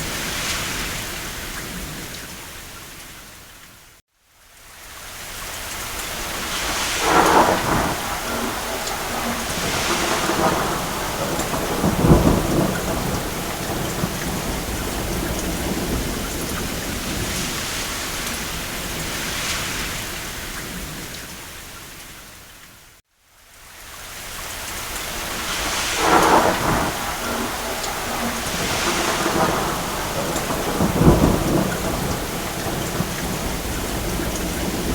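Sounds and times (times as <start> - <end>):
rain on a roof: 0.0 - 34.9
distant thunder rolling: 6.3 - 21.2, 25.2 - 34.9.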